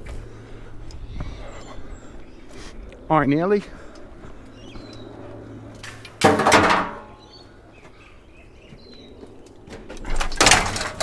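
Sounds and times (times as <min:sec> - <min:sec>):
scrap metal clanking: 0:05.8 - 0:07.3, 0:10.2 - 0:11.0.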